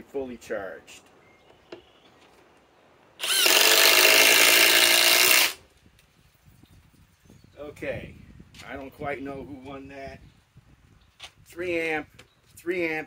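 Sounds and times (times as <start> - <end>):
impact driver driving screw: 3.2 - 5.6.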